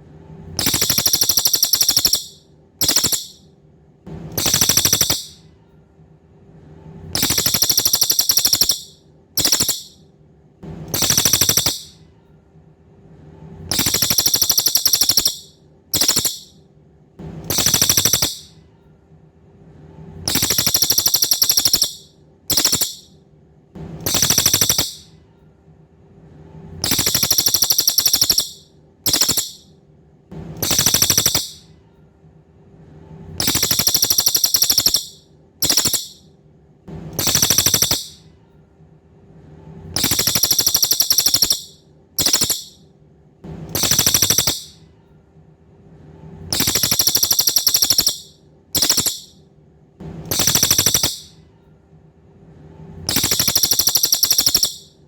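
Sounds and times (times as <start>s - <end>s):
faint steady hum: 0.0s - 55.0s
songbird buzzy trills: 0.6s - 3.4s, 4.3s - 5.4s, 7.2s - 10.0s, 10.9s - 12.0s, 13.7s - 16.6s, 17.5s - 18.6s, 20.3s - 23.1s, 24.0s - 25.1s, 26.8s - 29.7s, 30.6s - 31.6s, 33.4s - 36.2s, 37.2s - 38.2s, 40.0s - 42.8s, 43.7s - 44.8s, 46.5s - 49.4s, 50.3s - 51.4s, 53.1s - 54.9s.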